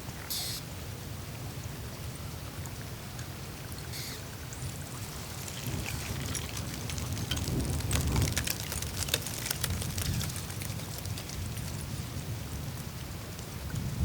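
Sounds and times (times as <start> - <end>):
meltwater rumbling: 4.4 - 12.9
ice ticking and crackling: 4.5 - 12.8.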